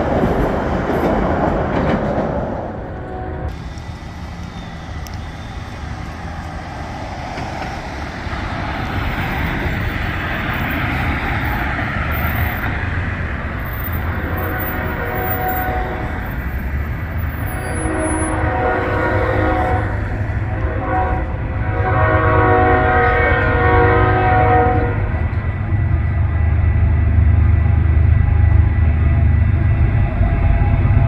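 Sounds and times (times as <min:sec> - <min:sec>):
train rumble and rail noise: 0:00.0 - 0:31.0
train horn: 0:03.0 - 0:03.6, 0:13.9 - 0:16.6, 0:17.2 - 0:25.1.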